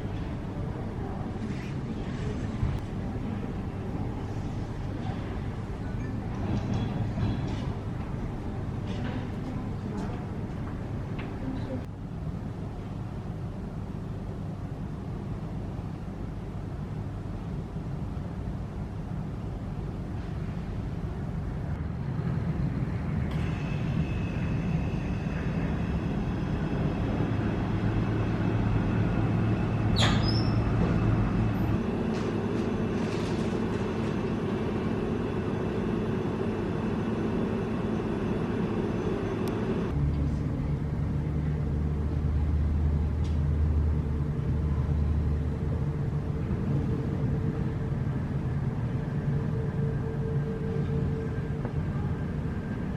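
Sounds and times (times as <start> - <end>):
vehicle engine droning: 21.7 - 52.9.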